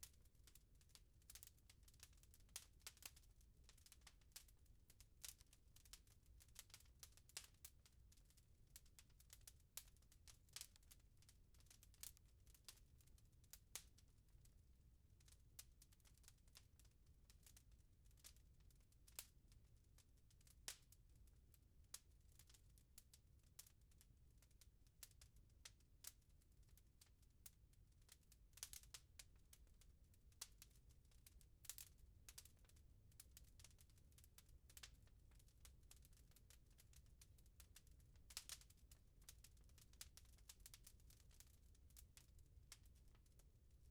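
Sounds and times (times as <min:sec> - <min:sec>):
wood fire crackling: 0:00.0 - 0:08.2, 0:08.8 - 0:14.4, 0:19.0 - 0:19.4, 0:21.8 - 0:24.1, 0:25.0 - 0:26.8, 0:27.5 - 0:43.0.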